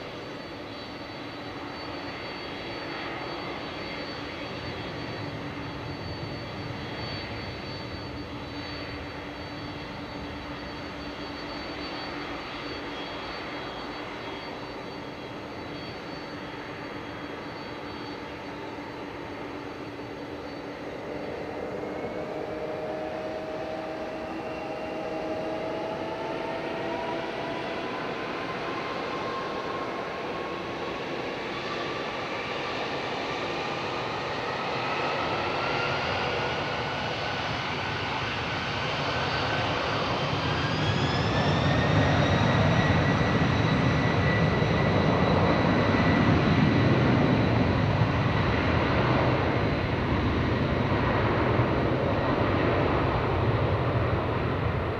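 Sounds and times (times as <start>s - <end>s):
jet engine whine: 0.0s - 54.9s
low jet engine rumble: 0.0s - 54.9s.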